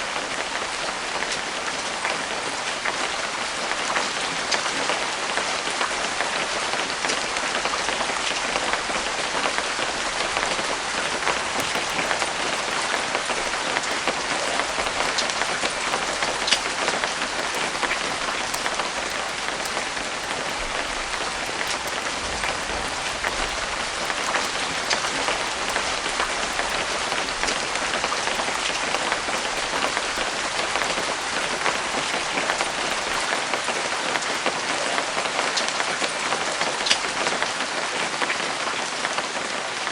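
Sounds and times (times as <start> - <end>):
light rain falling: 0.0 - 35.8
raindrop hits: 10.3 - 34.6.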